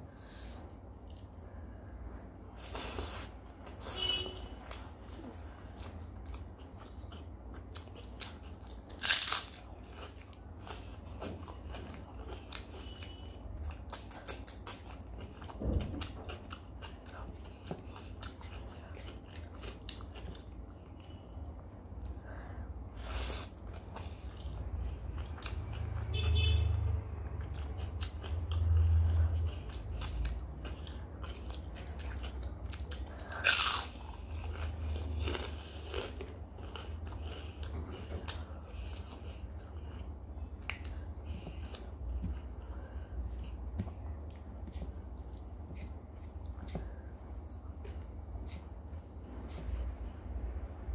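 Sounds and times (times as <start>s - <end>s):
chewing with wet mouth clicks: 5.8s - 22.2s, 23.6s - 26.1s, 27.2s - 48.7s
crunchy bites: 8.7s - 10.0s, 33.2s - 36.8s.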